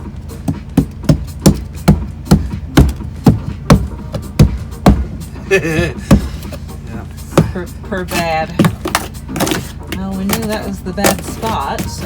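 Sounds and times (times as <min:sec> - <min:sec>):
steady low hum: 0:00.0 - 0:12.0
sharp heavy knocks: 0:00.4 - 0:06.4.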